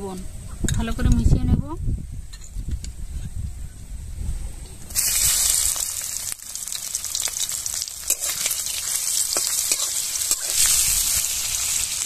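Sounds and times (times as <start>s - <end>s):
oil crackling: 4.9s - 12.0s
prawns sizzling in hot oil: 4.9s - 12.0s
metal spatula stirring: 8.0s - 11.2s.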